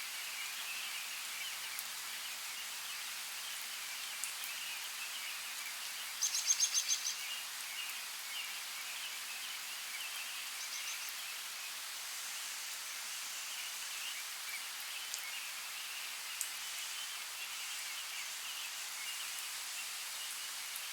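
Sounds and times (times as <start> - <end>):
steady rain hiss: 0.0 - 20.9
sharp drip-like ticks: 1.7 - 2.0, 14.9 - 15.3.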